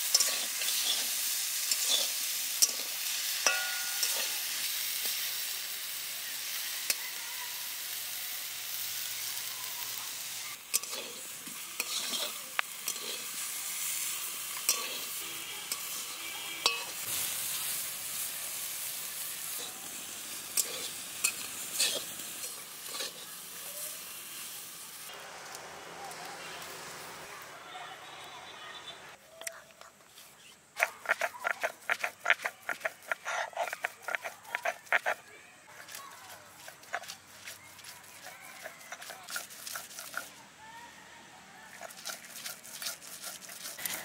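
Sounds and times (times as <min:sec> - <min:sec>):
spatula scraping and tapping metal: 0:00.0 - 0:01.1, 0:01.7 - 0:04.5, 0:10.6 - 0:13.4, 0:14.5 - 0:17.1, 0:20.5 - 0:23.3, 0:30.8 - 0:40.3, 0:41.8 - 0:44.0
leaves sizzling in a wok: 0:00.0 - 0:29.4, 0:30.1 - 0:44.0.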